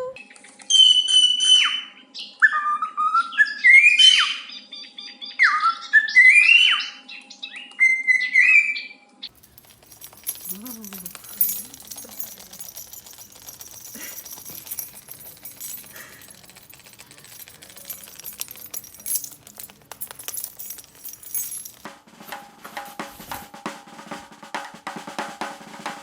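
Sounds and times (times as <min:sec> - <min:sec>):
drumming music: 0:21.6 - 0:26.0.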